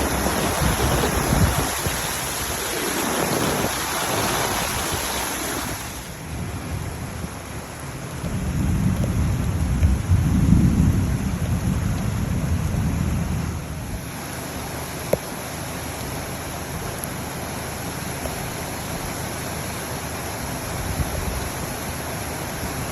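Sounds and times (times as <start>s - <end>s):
heavy rain: 0.0s - 22.9s
rolling thunder: 8.2s - 14.0s.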